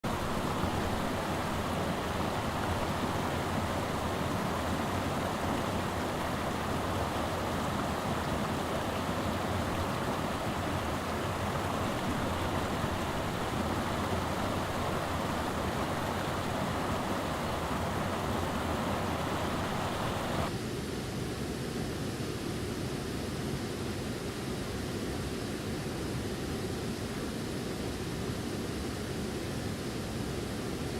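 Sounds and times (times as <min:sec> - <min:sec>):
waterfall rushing: 0:00.0 - 0:20.5.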